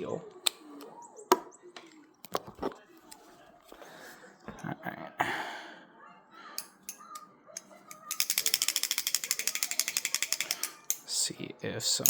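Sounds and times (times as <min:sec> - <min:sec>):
metal mechanism ratcheting clicks: 0:07.6 - 0:11.2.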